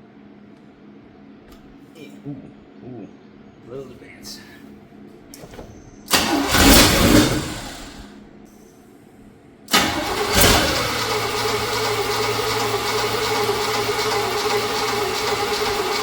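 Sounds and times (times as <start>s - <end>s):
truck engine starting and revving: 6.1s - 8.2s, 9.7s - 16.0s.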